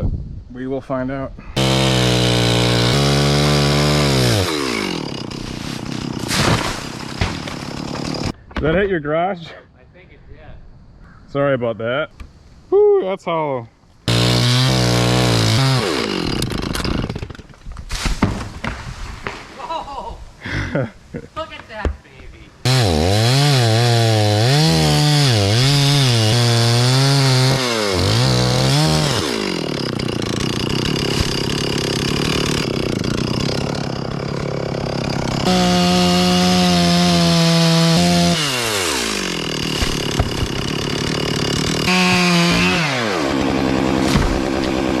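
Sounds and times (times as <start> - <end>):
chainsaw cutting wood: 1.6 - 8.4, 14.1 - 19.4, 22.6 - 45.0.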